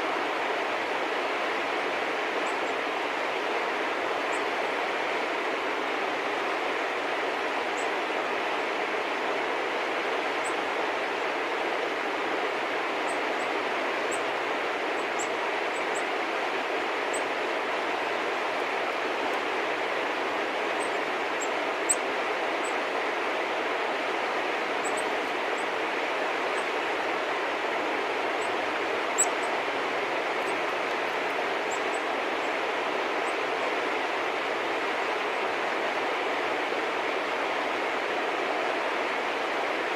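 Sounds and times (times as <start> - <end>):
steady rushing noise: 0.0 - 39.9
small birds chirping: 24.8 - 25.7, 28.4 - 29.7.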